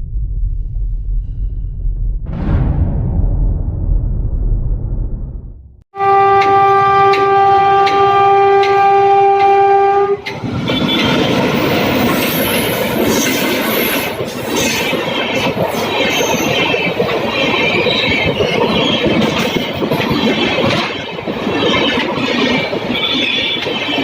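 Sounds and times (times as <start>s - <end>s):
train horn blast: 6.0s - 11.0s
train coaches rushing past: 10.2s - 24.0s
wheels rattling over rail joints: 10.2s - 24.0s.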